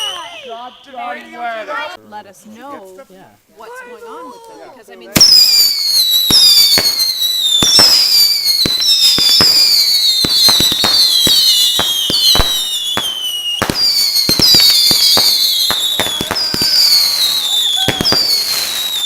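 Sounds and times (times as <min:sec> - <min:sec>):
firework whistles: 0:00.0 - 0:01.2, 0:05.2 - 0:19.0
firework pops and bangs: 0:05.2 - 0:19.0.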